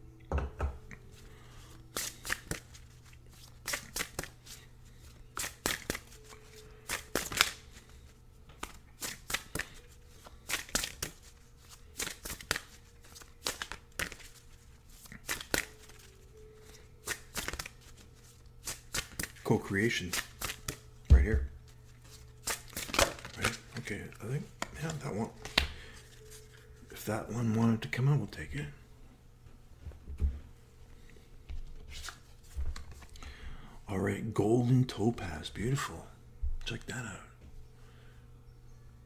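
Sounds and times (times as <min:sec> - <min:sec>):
cards being shuffled: 0:00.9 - 0:27.0, 0:31.5 - 0:33.2.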